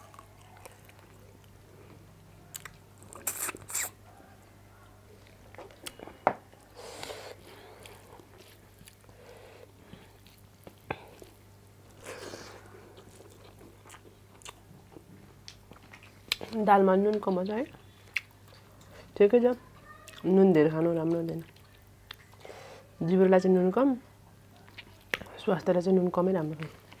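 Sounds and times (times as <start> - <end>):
person chewing food: 0.0 - 4.0, 4.8 - 19.2, 20.0 - 22.6, 24.6 - 25.3
sharp mouth clicks: 2.6 - 4.0
crunchy wet bursts: 3.0 - 4.0.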